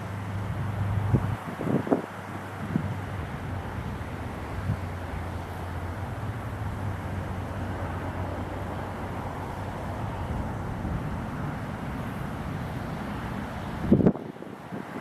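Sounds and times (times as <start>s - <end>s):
river flowing: 0.0s - 15.0s
wind in a snowstorm: 0.0s - 15.0s
low steady rumble: 2.2s - 14.1s.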